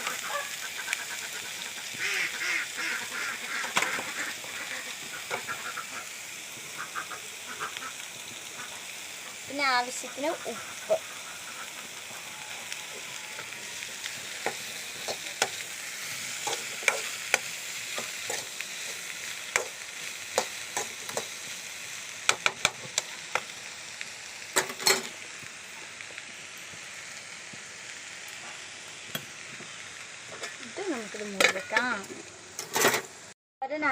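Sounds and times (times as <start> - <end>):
okra sizzling in oil: 0.0 - 33.9
spatula scraping a pan: 13.3 - 21.5.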